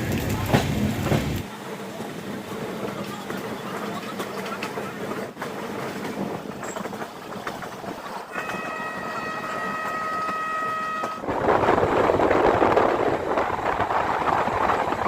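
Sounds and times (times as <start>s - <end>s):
train wheels clattering on rails: 0.0s - 15.0s
train horn held note: 8.3s - 11.3s.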